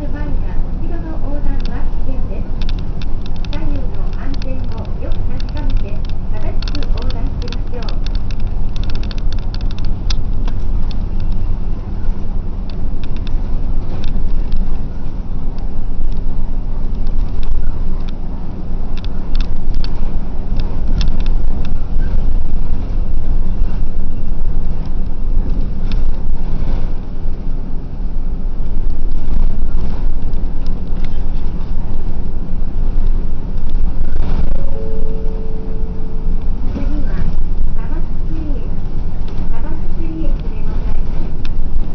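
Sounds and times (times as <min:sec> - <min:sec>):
bus engine and road rumble: 0:00.0 - 0:41.9
light clicks and rattles: 0:01.0 - 0:11.5, 0:12.6 - 0:18.2, 0:18.8 - 0:22.9.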